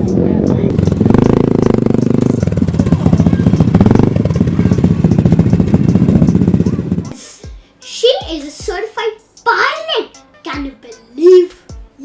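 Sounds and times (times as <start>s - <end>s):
piston engine running: 0.0s - 7.2s.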